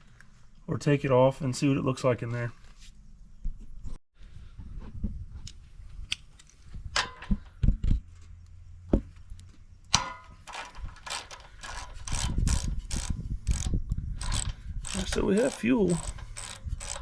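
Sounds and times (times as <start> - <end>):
metal tools clinking: 10.0 - 17.0
socket ratchet clicking: 10.5 - 17.0.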